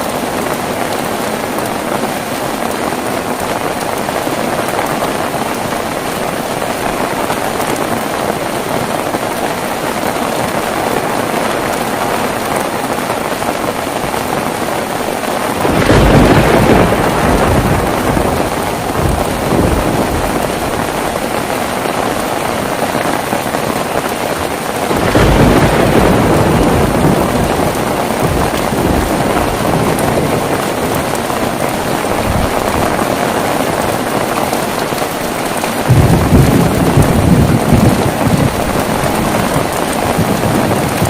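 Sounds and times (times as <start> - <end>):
heavy rain: 0.0 - 41.0
thunder rolling: 15.5 - 23.2, 24.8 - 34.3, 35.8 - 41.0.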